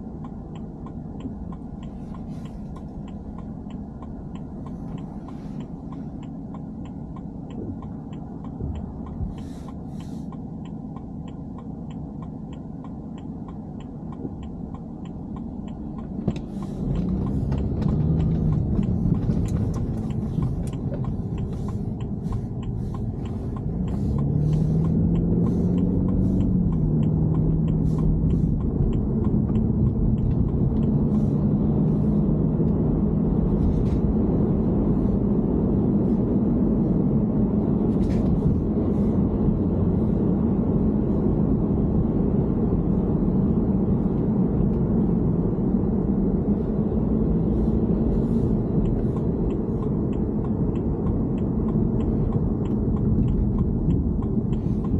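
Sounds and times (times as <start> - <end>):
even ticking: 0.0 - 31.9, 46.9 - 54.9
car engine rumbling: 0.0 - 54.9
steady drone: 1.7 - 32.2.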